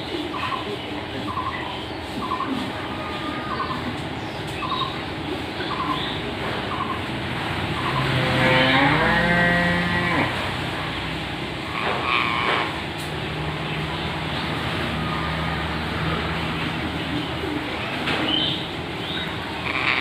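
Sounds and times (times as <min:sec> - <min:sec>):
parrot calling: 0:11.7 - 0:12.7, 0:19.6 - 0:20.0.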